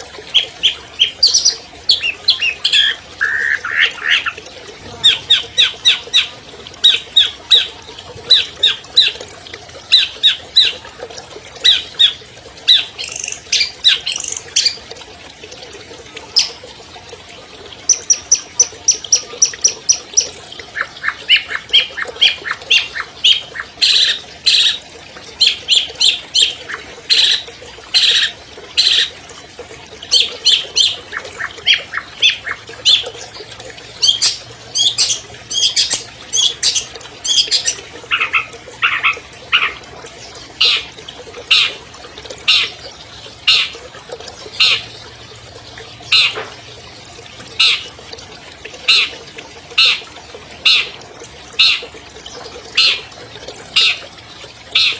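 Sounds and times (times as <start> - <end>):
bird singing harsh notes: 34.0 - 39.8.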